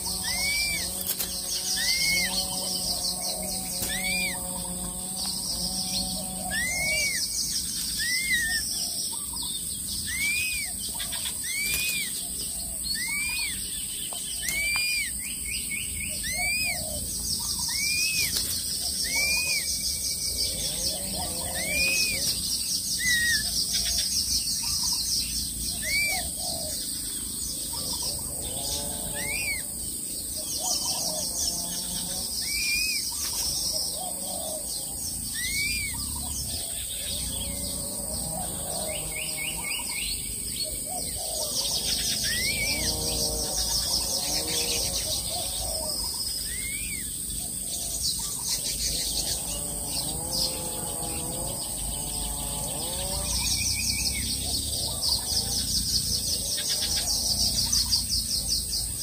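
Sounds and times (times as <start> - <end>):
high insect trill: 0.0 - 59.0
bird whistling: 0.2 - 1.0, 1.7 - 2.4, 3.8 - 4.4, 6.5 - 7.3, 8.0 - 8.7, 10.0 - 10.8, 11.4 - 12.2, 12.9 - 13.7, 14.4 - 18.4, 19.0 - 20.0, 21.5 - 22.4, 23.0 - 23.5, 25.8 - 26.6, 32.4 - 33.2, 35.3 - 36.4, 45.4 - 47.2.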